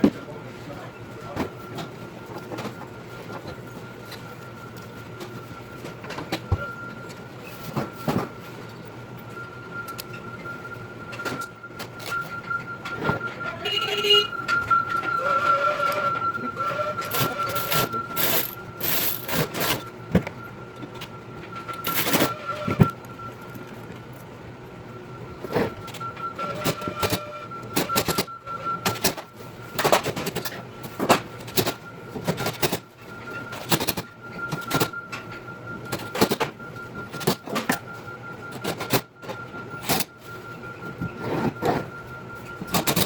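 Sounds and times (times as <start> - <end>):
metal parts and tools clanking: 17.0 - 19.8, 21.8 - 23.7.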